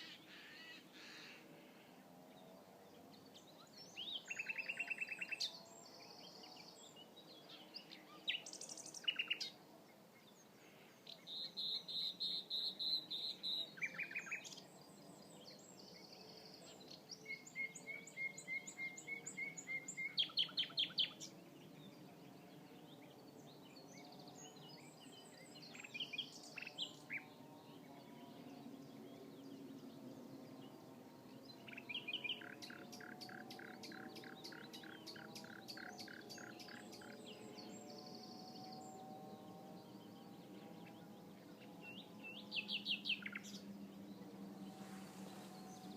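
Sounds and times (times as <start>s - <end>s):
nightingale singing: 3.9s - 5.5s, 7.8s - 9.6s, 11.1s - 14.6s, 17.0s - 21.3s, 31.5s - 39.6s, 41.6s - 43.8s.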